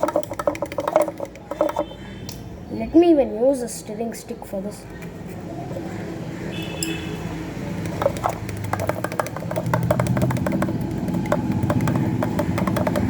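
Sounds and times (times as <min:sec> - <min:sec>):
stirring stick tapping glass: 0:00.0 - 0:02.0, 0:07.8 - 0:13.0.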